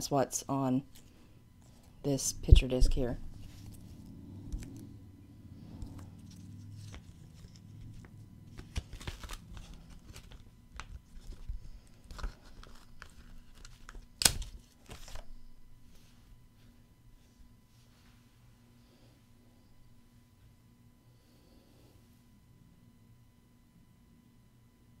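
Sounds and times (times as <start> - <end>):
packaging and paper rustling: 5.8 - 15.4.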